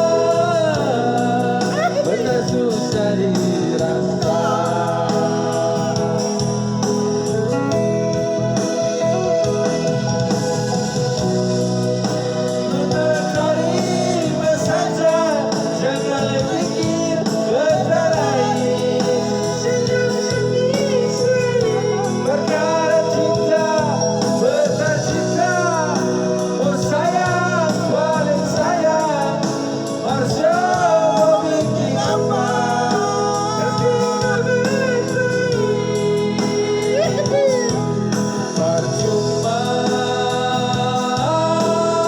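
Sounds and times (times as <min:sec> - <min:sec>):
backing accompaniment: 0:00.0 - 0:42.0.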